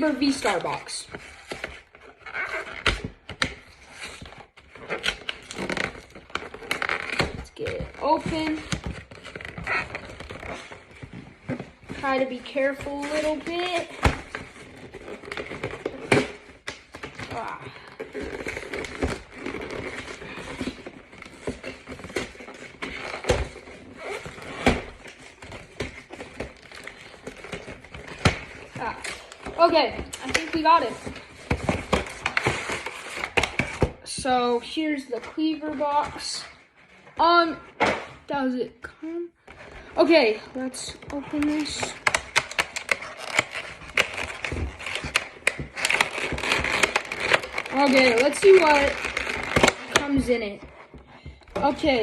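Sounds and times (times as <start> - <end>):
cardboard rustling and scraping: 0.0 - 38.0, 39.4 - 52.0
cardboard box rustling: 39.4 - 52.0.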